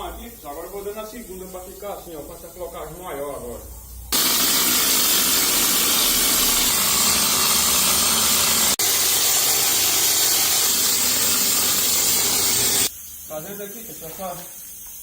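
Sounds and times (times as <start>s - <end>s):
air spray gun hissing: 4.1s - 15.0s.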